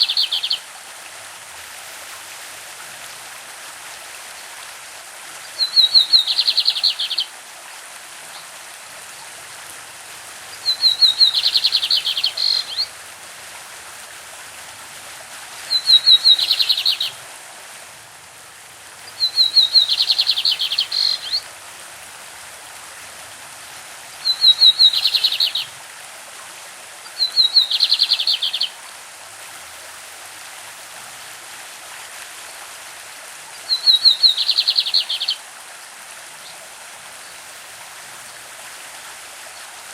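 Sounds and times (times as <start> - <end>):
bird singing trills: 0.0 - 0.6, 5.6 - 7.3, 10.6 - 12.9, 15.7 - 17.2, 19.1 - 21.4, 24.3 - 25.7, 27.2 - 28.7, 33.7 - 35.4
stream babbling: 0.0 - 39.9.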